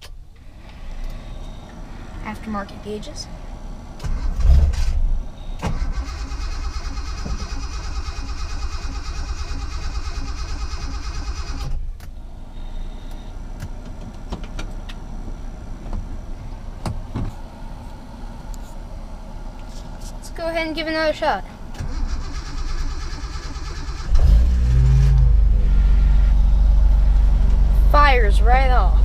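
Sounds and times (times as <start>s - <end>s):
car engine cranking on starter: 3.9s - 15.1s, 21.6s - 26.2s.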